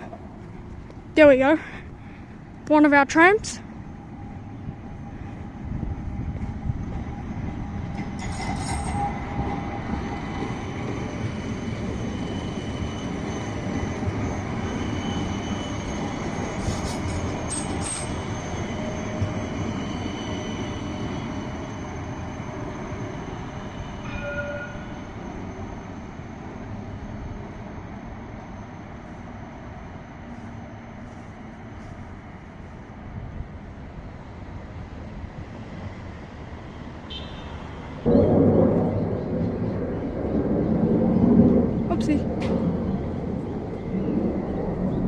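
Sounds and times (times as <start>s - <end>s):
tram wheels rumbling on rail: 0.0s - 45.0s
thin squealing tones: 11.6s - 30.9s.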